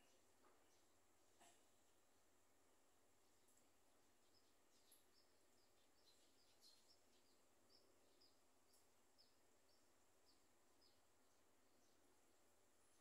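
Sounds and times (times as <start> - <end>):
faint high bird chirps: 0.0 - 1.7, 4.0 - 13.0
steady low hiss: 0.0 - 13.0.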